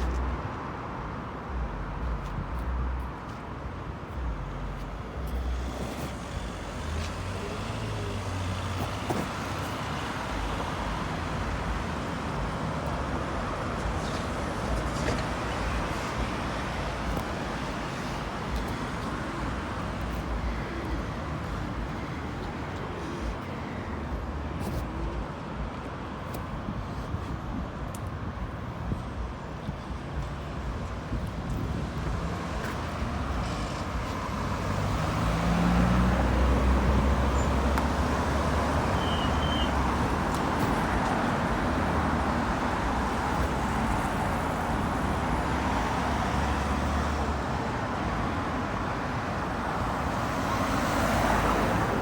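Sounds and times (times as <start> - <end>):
road traffic: 0.0 - 52.0
vehicle passing: 30.3 - 48.4.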